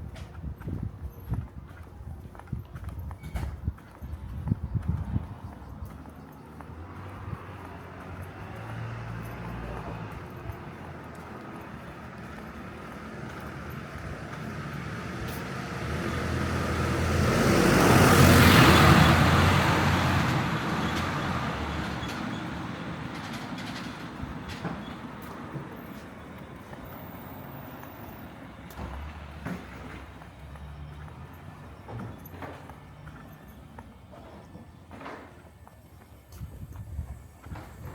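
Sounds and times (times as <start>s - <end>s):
steady traffic noise: 0.0s - 37.9s
vehicle passing close by: 5.2s - 24.2s.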